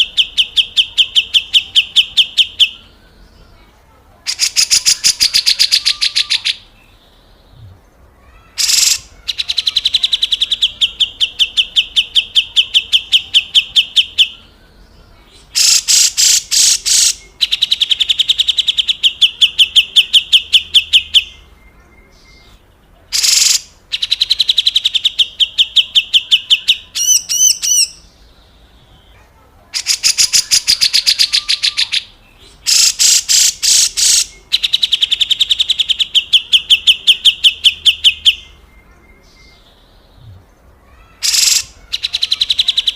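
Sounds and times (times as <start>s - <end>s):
bird harsh rattling call: 8.5s - 10.3s, 15.5s - 17.2s, 23.2s - 24.3s, 29.8s - 36.2s, 40.9s - 42.9s.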